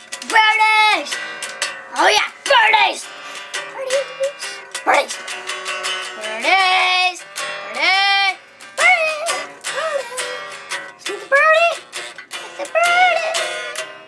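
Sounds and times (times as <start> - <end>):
acoustic guitar strumming: 0.0 - 14.0
girl squealing: 9.7 - 10.3.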